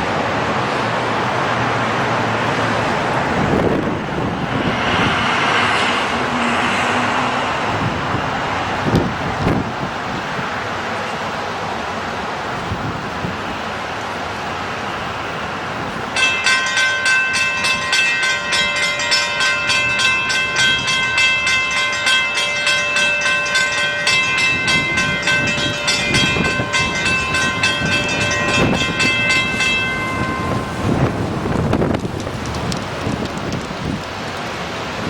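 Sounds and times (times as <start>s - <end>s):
crossing warning bell ringing: 2.5s - 8.5s, 15.2s - 32.2s
wind noise: 2.6s - 10.6s, 12.5s - 13.7s, 15.3s - 35.0s.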